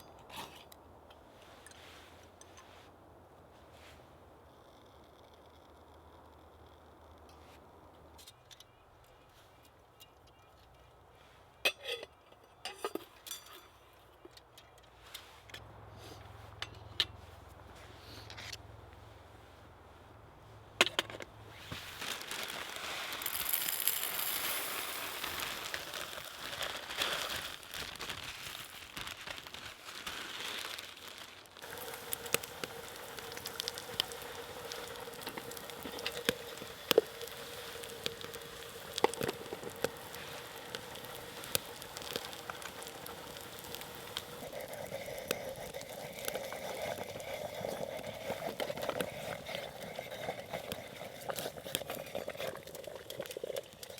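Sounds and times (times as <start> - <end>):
wood fire crackling and popping: 21.5 - 53.9.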